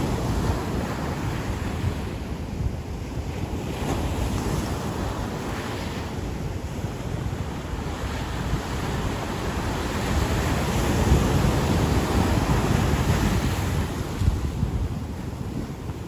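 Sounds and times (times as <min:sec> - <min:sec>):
ocean waves breaking: 0:00.0 - 0:16.0
wind buffeting microphone: 0:00.0 - 0:16.0.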